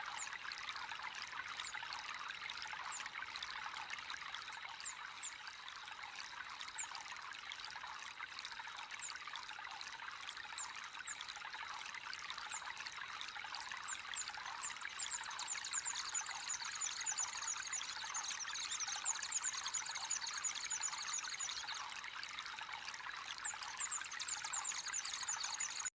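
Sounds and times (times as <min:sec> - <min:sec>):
water trickling into a pond: 0:00.0 - 0:25.9
small birds chirping: 0:14.2 - 0:21.9, 0:23.4 - 0:25.9.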